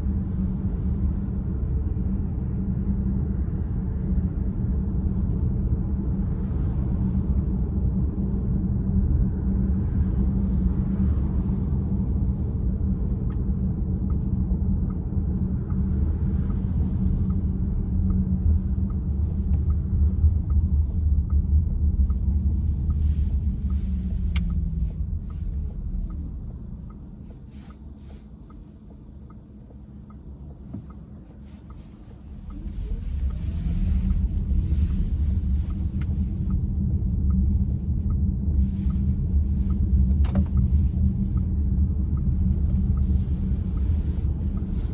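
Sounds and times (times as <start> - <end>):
road and engine rumble: 0.0 - 44.9.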